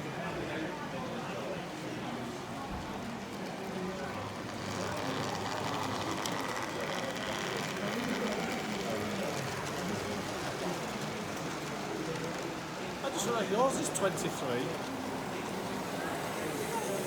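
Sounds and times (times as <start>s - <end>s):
background chatter: 0.0s - 17.0s
model train motor whine: 4.4s - 17.0s.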